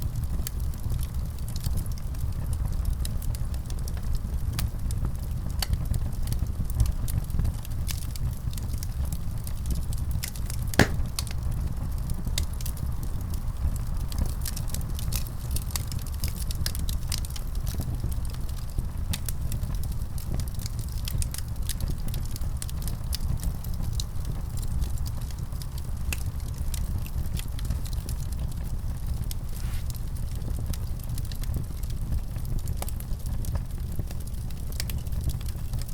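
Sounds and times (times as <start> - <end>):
wood fire crackling and popping: 10.8 - 35.9.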